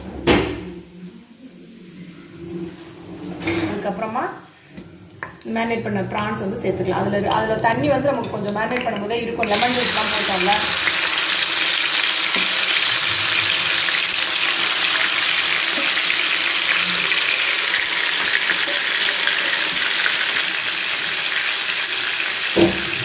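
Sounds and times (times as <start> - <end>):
prawns sizzling in hot oil: 9.4 - 23.0.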